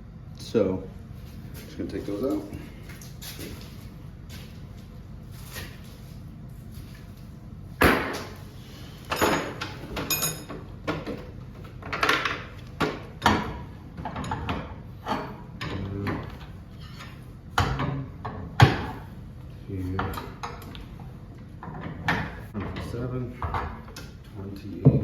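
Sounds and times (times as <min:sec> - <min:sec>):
metal tool clanks and knocks: 0:09.1 - 0:11.2
metallic ringing: 0:10.1 - 0:10.5.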